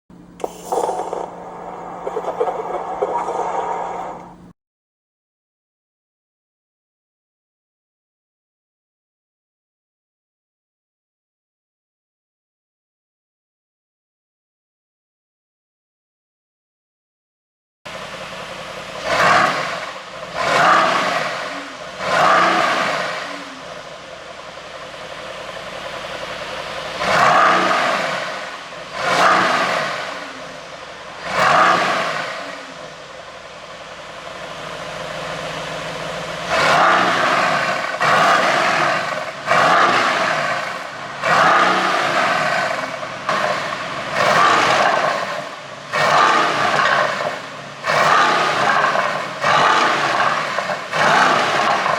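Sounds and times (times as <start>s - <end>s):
car engine revving: 0.2s - 4.5s, 17.9s - 51.9s.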